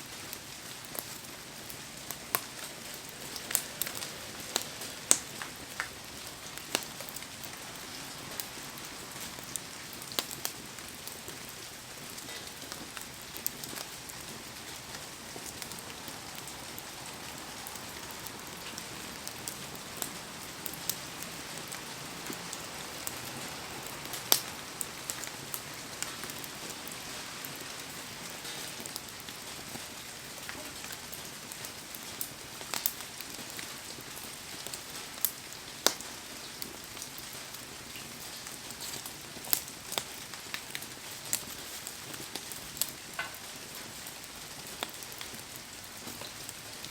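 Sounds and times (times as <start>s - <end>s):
heavy rain hissing: 1.9s - 30.3s
sharp pops and ticks: 24.2s - 24.5s, 42.3s - 43.5s.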